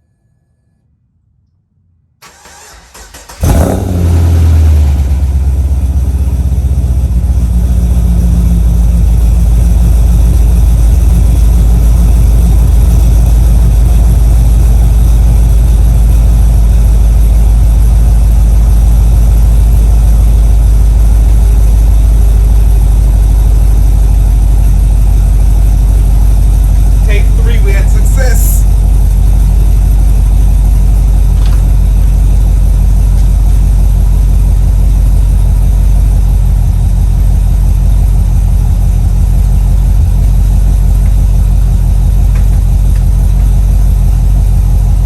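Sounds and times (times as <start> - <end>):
car engine cranking: 2.2 - 5.8
car engine starting and idling: 2.2 - 45.0.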